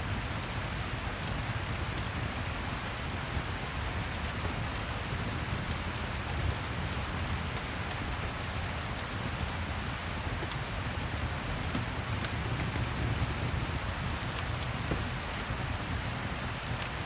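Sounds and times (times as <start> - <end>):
fireplace crackling: 0.0 - 7.4
steady rain: 0.0 - 17.0.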